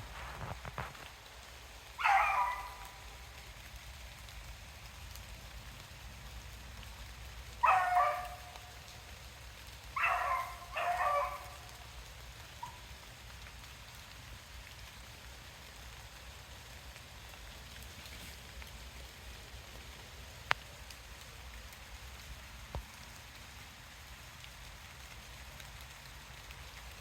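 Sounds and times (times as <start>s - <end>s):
steady rain: 0.0s - 27.0s
hounds baying: 2.0s - 3.3s, 7.6s - 8.9s, 9.9s - 11.9s.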